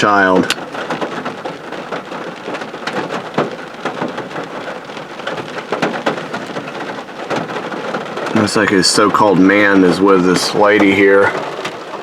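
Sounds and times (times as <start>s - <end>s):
rain drops striking: 0.0s - 12.0s.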